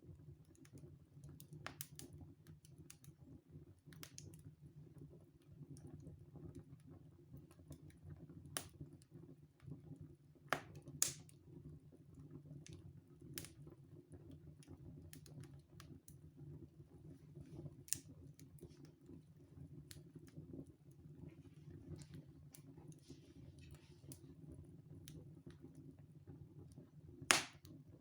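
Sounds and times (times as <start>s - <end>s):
wood fire crackling: 0.1s - 28.0s
fire popping: 10.5s - 11.3s, 16.9s - 26.3s, 27.2s - 28.0s.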